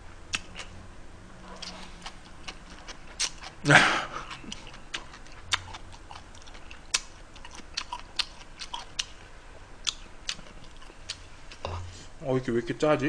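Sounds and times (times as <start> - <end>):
person chewing noodles: 0.3 - 0.8, 1.4 - 12.1
mouth clicks and smacks: 9.8 - 11.8.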